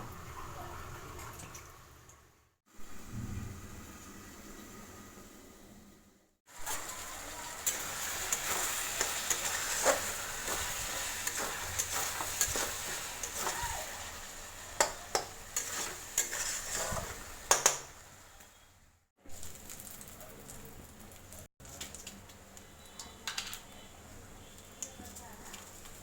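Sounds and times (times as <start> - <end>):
food sizzling in a pan: 6.5 - 26.0
spatula scraping a pan: 6.6 - 17.7.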